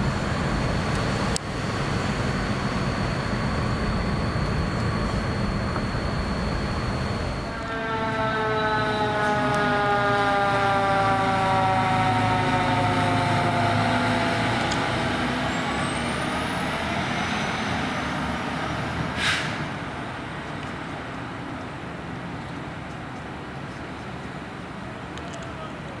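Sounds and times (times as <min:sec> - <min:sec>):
fire truck siren: 0:00.0 - 0:20.4
heavy vehicle engine and road noise: 0:00.0 - 0:26.0
sharp hiss: 0:19.2 - 0:19.7.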